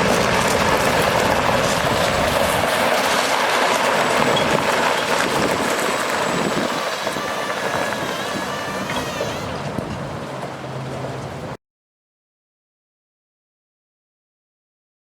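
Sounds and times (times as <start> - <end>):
dump truck driving: 0.0 - 11.6
road and wind noise: 0.0 - 11.6.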